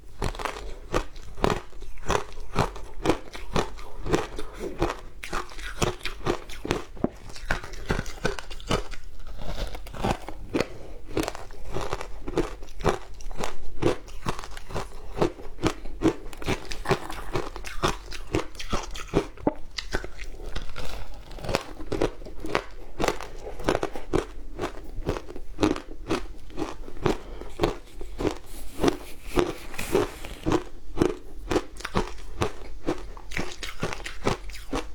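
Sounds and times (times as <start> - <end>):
ice being bitten and chewed: 0.0 - 34.9.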